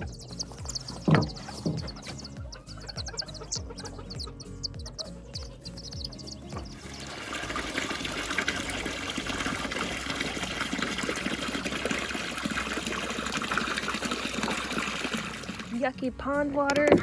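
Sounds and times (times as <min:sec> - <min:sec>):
water gushing and splashing: 0:06.2 - 0:15.9.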